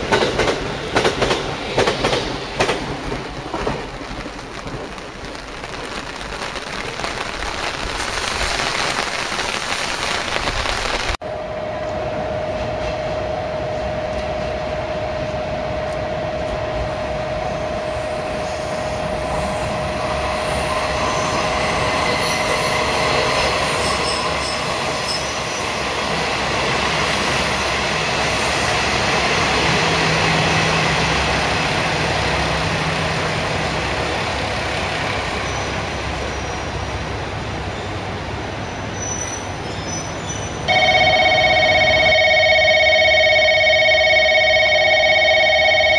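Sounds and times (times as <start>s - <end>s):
train rolling rumble: 0.0s - 45.9s
train wheels squealing on rails: 11.6s - 31.2s, 34.7s - 40.7s.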